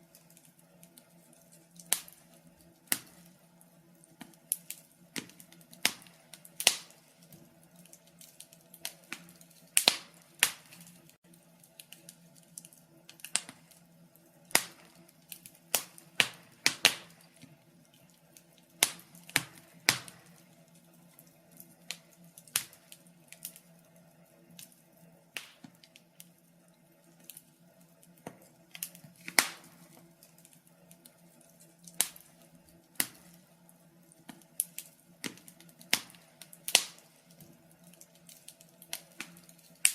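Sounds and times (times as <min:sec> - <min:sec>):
fire crackling: 0:00.0 - 0:39.9.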